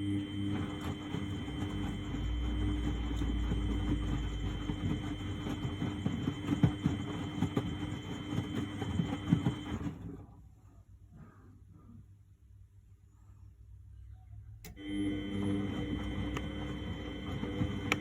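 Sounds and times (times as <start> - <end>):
washing machine motor humming: 0.0 - 10.5, 14.6 - 18.0
wet laundry knocking in drum: 0.8 - 9.9.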